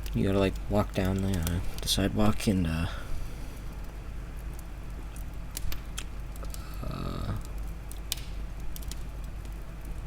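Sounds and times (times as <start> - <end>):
steady low hum: 0.0 - 10.0
person humming mm: 6.6 - 7.4
small clicks: 7.4 - 10.0.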